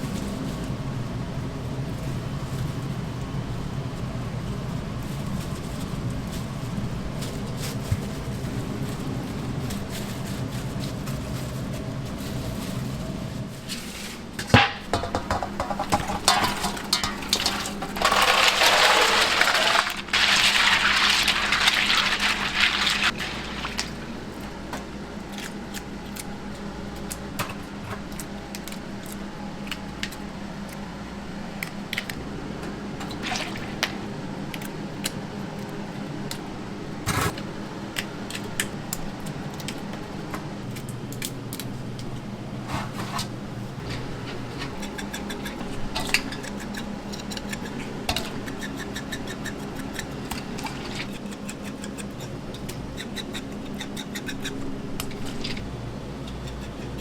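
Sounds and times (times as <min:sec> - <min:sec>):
water rushing: 0:19.3 - 0:24.2.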